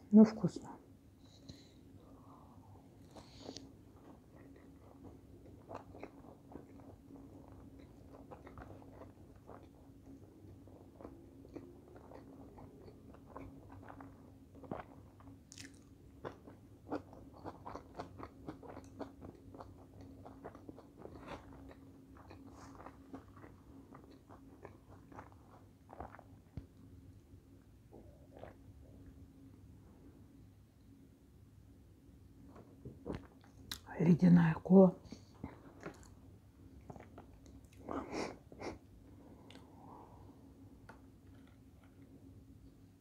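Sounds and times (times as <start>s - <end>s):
faint steady hum: 0.0s - 43.0s
person chewing food: 3.0s - 26.9s, 28.0s - 29.2s, 32.5s - 33.8s, 35.1s - 38.8s, 40.8s - 42.2s.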